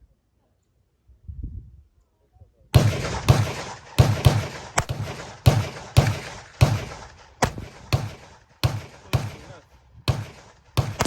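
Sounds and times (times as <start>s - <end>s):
gunshots with echo: 2.8s - 11.0s.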